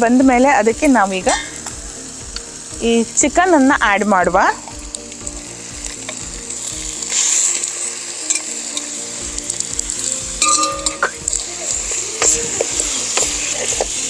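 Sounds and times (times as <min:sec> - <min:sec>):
chicken sizzling in hot oil: 0:00.0 - 0:14.0
metal clink: 0:10.4 - 0:11.2.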